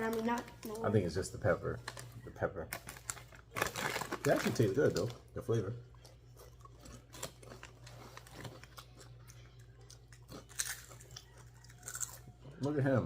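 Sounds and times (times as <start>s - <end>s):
potato chips crunching: 2.7s - 5.2s, 5.9s - 12.8s.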